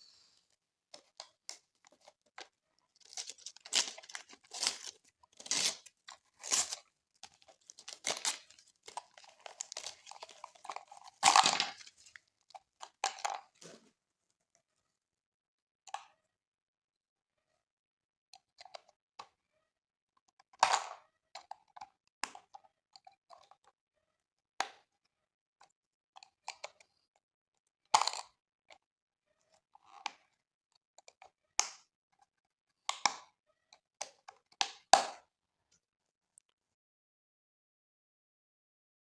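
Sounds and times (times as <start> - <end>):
packaging being handled: 1.4 - 12.2.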